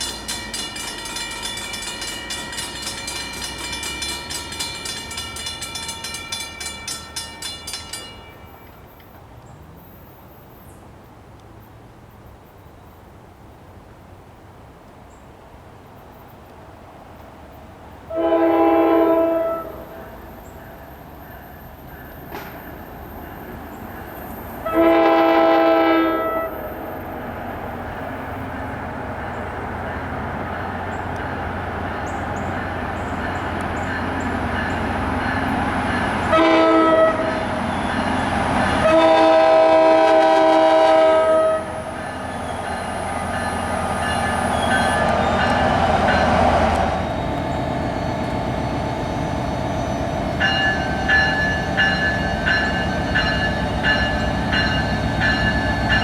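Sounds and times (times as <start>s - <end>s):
rapid even ringing: 0.0s - 8.8s
train rumbling: 0.0s - 11.4s, 16.0s - 56.0s
train horn blasts: 18.1s - 20.2s, 24.6s - 26.9s, 36.2s - 38.0s, 38.6s - 43.4s.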